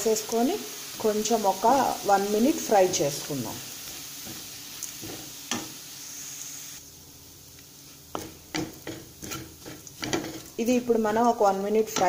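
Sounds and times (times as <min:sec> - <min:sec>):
onions sizzling in hot oil: 0:00.0 - 0:12.0
spatula knocking against pan: 0:08.2 - 0:10.4.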